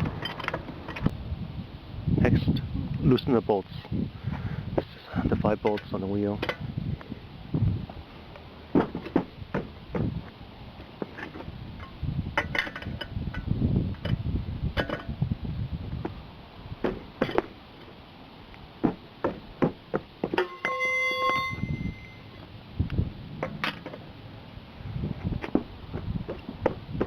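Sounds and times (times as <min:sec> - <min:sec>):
ringing metallic ping: 0:20.4 - 0:22.4
wrench clinking on lug nuts: 0:20.4 - 0:22.4.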